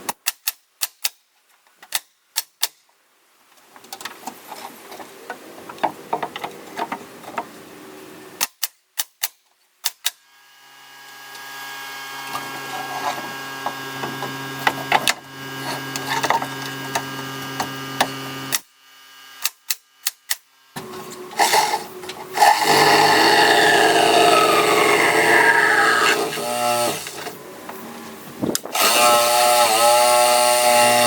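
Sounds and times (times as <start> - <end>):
rough cutting of wood: 20.8 - 27.4, 28.6 - 31.0
power tool motor hum: 20.8 - 31.0.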